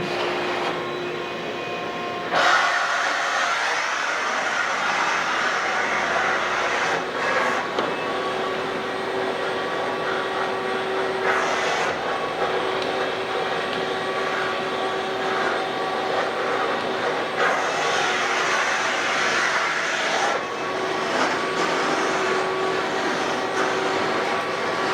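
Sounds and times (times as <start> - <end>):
floor cleaning machine whirring: 0.0 - 24.9.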